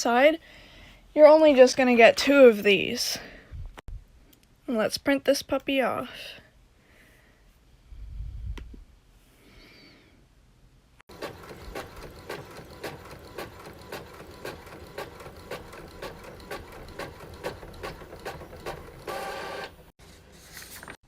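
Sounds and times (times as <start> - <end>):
printer whirring: 11.1 - 19.8.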